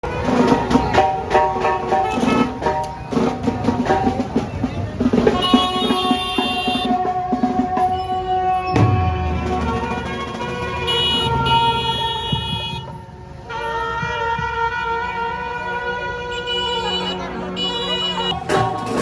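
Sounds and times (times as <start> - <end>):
drum-driven dance music: 0.1 - 8.2, 8.8 - 13.0, 16.7 - 19.0
heavy bass hit: 8.8 - 12.9.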